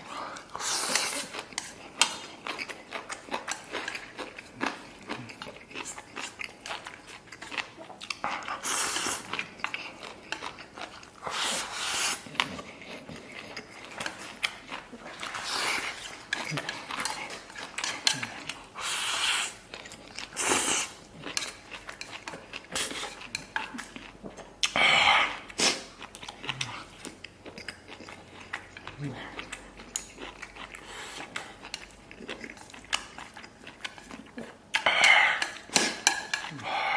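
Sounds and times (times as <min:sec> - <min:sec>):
chewing and biting: 0:00.5 - 0:08.6, 0:09.2 - 0:19.0, 0:19.6 - 0:36.9.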